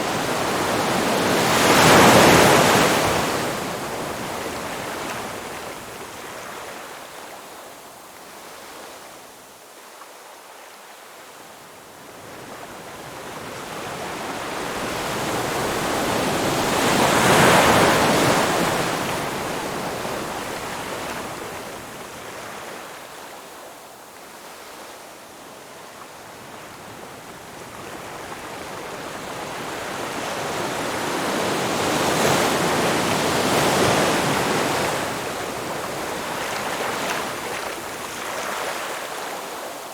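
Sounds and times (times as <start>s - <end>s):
waves breaking on shore: 0.0s - 7.1s, 13.4s - 23.2s, 27.6s - 39.9s.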